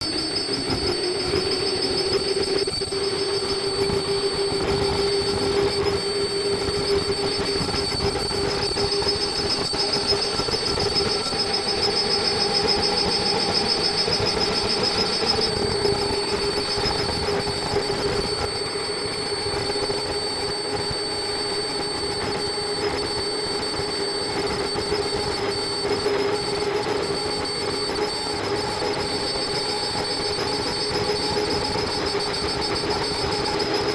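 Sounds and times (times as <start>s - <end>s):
machine whining tones: 0.0s - 33.9s.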